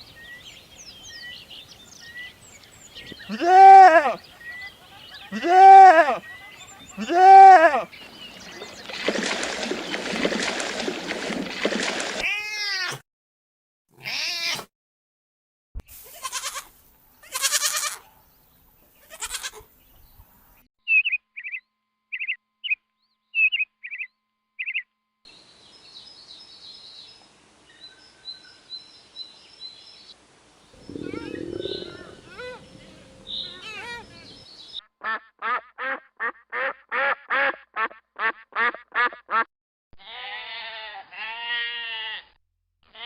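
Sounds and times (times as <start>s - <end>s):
goats or sheep bleating: 3.2s - 4.2s, 5.3s - 6.2s, 6.9s - 7.9s, 14.0s - 14.6s, 16.0s - 18.0s, 19.0s - 19.6s, 40.0s - 43.0s
thin high calls: 30.8s - 34.4s.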